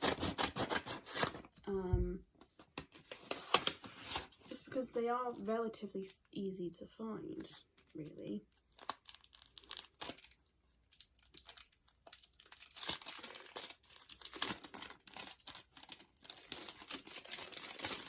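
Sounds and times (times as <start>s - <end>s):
packaging crinkling and tearing: 0.0s - 1.6s, 3.0s - 4.4s, 7.5s - 18.0s
packaging clicks and rustles: 7.8s - 18.0s.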